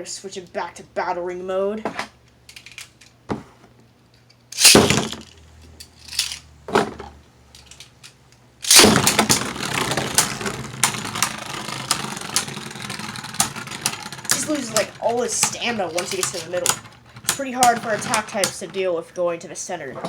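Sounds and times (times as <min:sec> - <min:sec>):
sharp plastic clacks: 0:04.6 - 0:06.4, 0:07.6 - 0:18.6
spinning tops scraping rattle: 0:04.6 - 0:06.5, 0:08.6 - 0:16.8.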